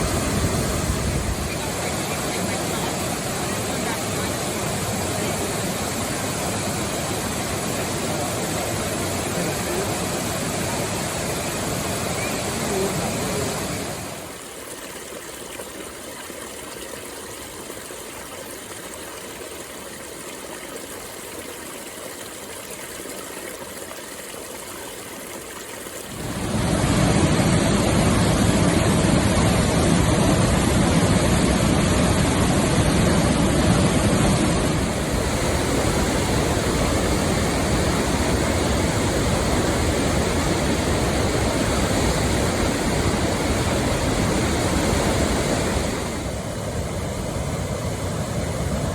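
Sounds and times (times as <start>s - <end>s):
waterfall roaring: 0.0s - 14.4s, 26.1s - 48.9s.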